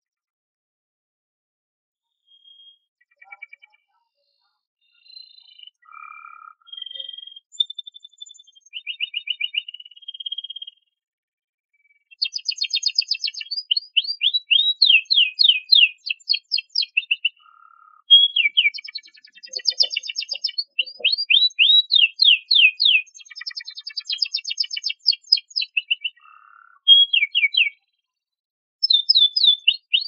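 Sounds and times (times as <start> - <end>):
canary singing: 5.0 - 10.8, 12.1 - 27.8, 28.8 - 30.0.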